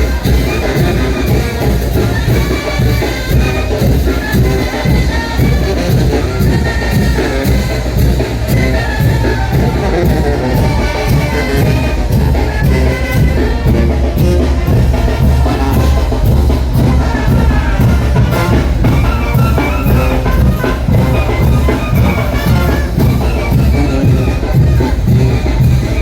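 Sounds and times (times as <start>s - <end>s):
brass band melody: 0.0s - 26.0s
steady drum beat: 0.0s - 26.0s.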